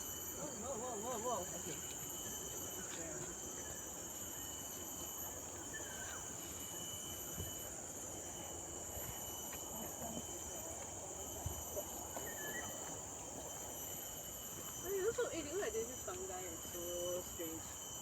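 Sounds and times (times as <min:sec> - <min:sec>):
insect chorus: 0:00.0 - 0:18.0
faint chirps: 0:03.5 - 0:14.2.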